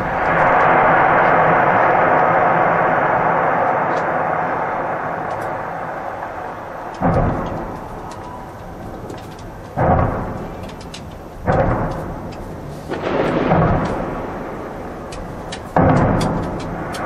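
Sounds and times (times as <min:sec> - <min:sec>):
fireworks crackling hiss: 0:00.0 - 0:17.0
fireworks popping: 0:00.0 - 0:17.0
loud firework booms: 0:00.0 - 0:17.0.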